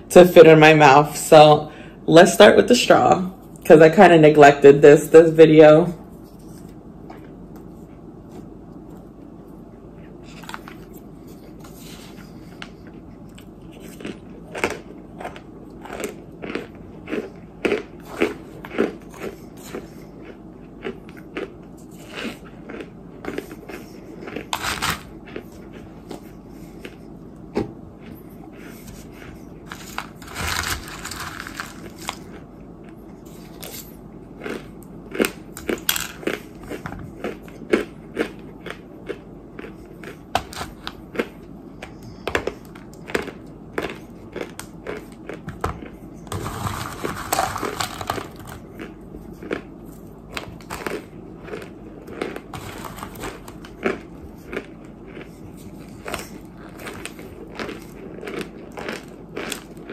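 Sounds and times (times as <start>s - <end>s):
crunching of dry clay chunks: 29.7s - 32.4s, 50.3s - 55.3s, 56.0s - 59.9s.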